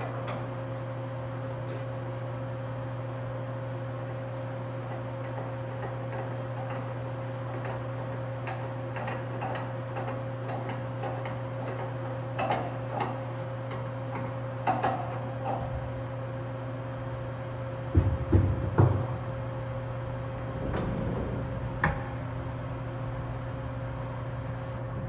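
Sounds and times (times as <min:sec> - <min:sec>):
lathe machine hum: 0:19.4 - 0:25.0.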